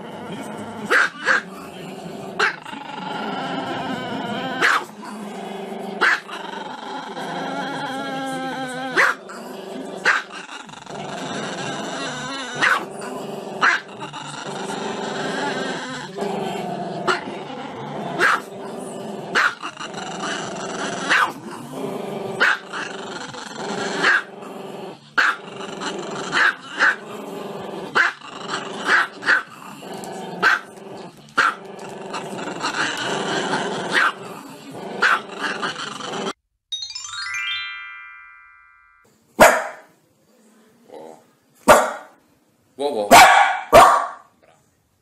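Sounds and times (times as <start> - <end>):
dog barking: 0.9 - 1.4, 4.6 - 4.9, 6.0 - 6.3, 9.0 - 9.2, 12.6 - 12.9, 13.6 - 13.9, 18.2 - 18.5, 19.4 - 19.6, 21.1 - 21.4, 22.4 - 22.6, 24.0 - 24.3, 25.2 - 25.4, 30.4 - 30.6, 33.9 - 34.2, 39.4 - 39.9, 41.7 - 42.2, 43.1 - 44.3
dog growling howl: 2.6 - 5.6, 6.2 - 9.2, 10.5 - 25.0.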